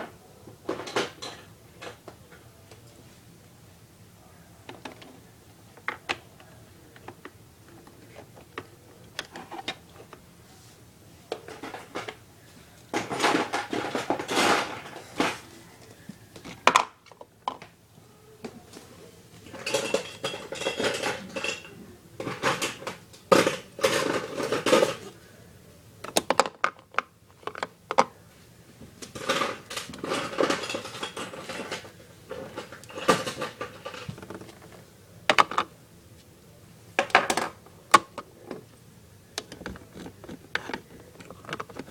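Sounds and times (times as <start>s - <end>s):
plastic toy pieces clattering: 12.9s - 15.4s, 19.5s - 25.1s, 29.0s - 34.7s, 39.4s - 41.9s.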